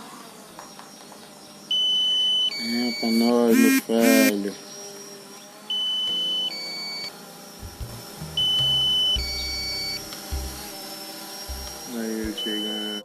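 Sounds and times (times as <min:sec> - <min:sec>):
low-battery alarm beeping: 0:01.7 - 0:04.4, 0:05.7 - 0:10.6, 0:11.5 - 0:13.0
low thumps: 0:07.6 - 0:10.8, 0:11.5 - 0:12.4.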